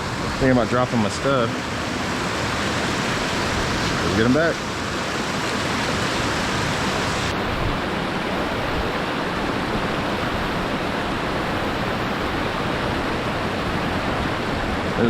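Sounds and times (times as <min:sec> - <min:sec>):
water pouring over spillway: 0:02.3 - 0:07.3.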